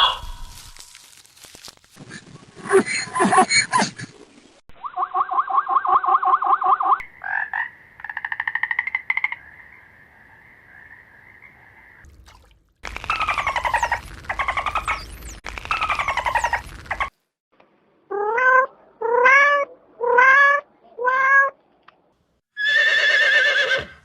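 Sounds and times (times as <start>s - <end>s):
high falling chirps: 12.8s - 17.1s.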